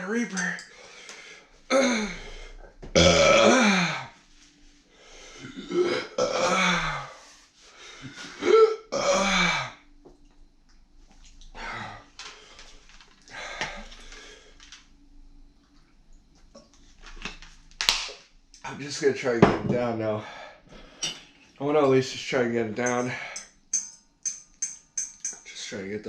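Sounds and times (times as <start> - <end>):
man groaning: 1.7 - 2.3, 3.0 - 4.1
man clearing throat: 3.0 - 4.0.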